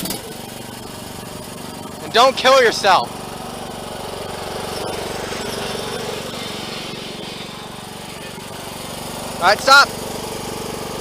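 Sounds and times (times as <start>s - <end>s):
riding lawn mower engine running: 0.0s - 11.0s.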